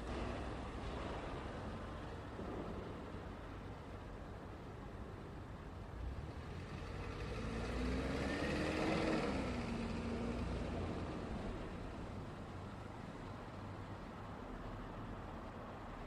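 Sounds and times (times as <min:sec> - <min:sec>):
traffic rumble: 0:00.0 - 0:16.0
road vehicle passing by: 0:05.9 - 0:16.0.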